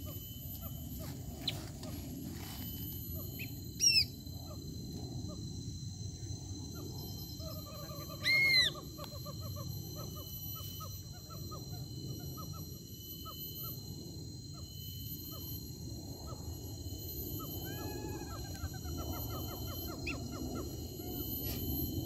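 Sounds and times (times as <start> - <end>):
soft bird chirps: 0.0 - 4.6
high-pitched insect drone: 0.0 - 22.0
whistled bird calls: 3.1 - 4.6, 8.2 - 12.6.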